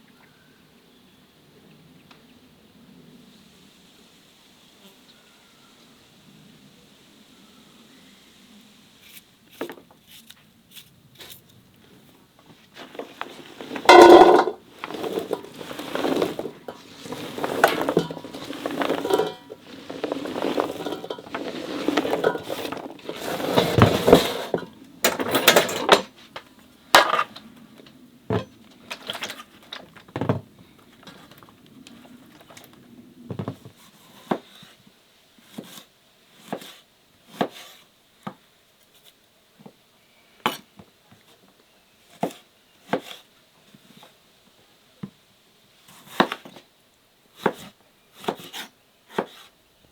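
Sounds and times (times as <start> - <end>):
dishes and utensils clinking: 12.8 - 26.1.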